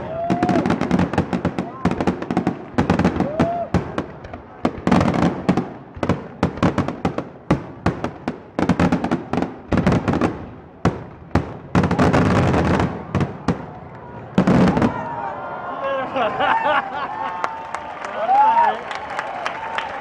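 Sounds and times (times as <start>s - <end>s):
firework crackle: 0.0s - 13.8s.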